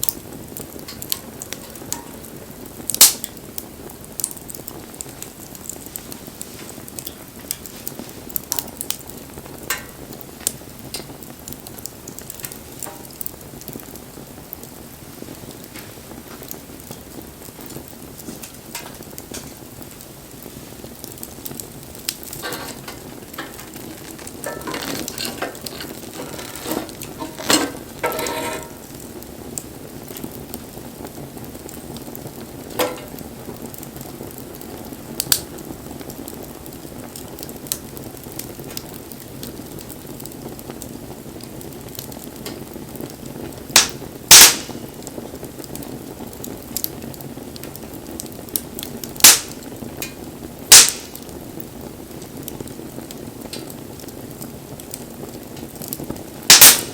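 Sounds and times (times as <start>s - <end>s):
fire popping: 0.0s - 56.9s
wood fire crackling: 0.0s - 56.9s.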